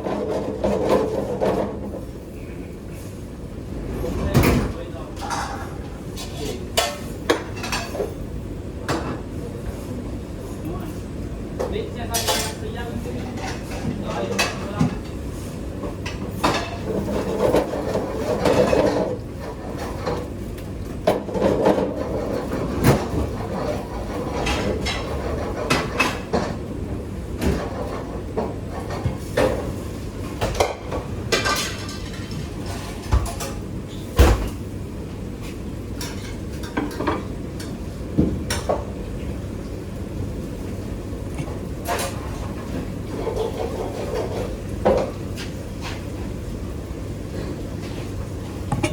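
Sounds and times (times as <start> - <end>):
dishes and pots clattering: 12.1 - 12.6, 15.9 - 20.3, 30.4 - 34.4, 41.4 - 46.0.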